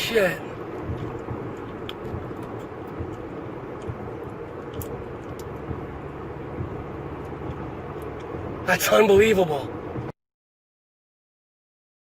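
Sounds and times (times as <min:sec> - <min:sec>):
vehicle engine hum and road rumble: 0:00.0 - 0:10.2.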